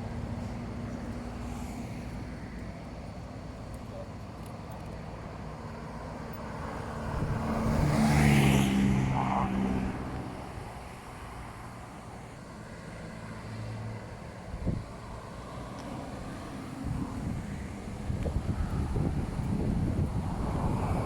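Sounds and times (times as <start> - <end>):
vehicle driving past: 6.9 - 10.6
wind noise: 7.0 - 8.6, 14.5 - 15.1, 16.7 - 21.0.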